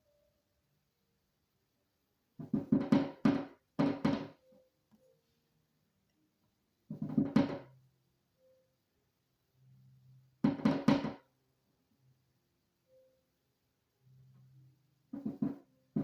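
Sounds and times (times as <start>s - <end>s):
woodpecker knocking on glass: 2.4s - 4.4s, 6.9s - 7.7s, 10.4s - 11.3s, 15.1s - 16.0s.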